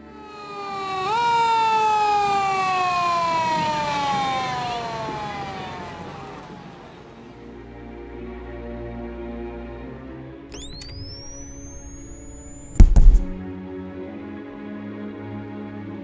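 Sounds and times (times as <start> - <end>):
siren winding down: 0.0 - 7.3, 10.5 - 13.4.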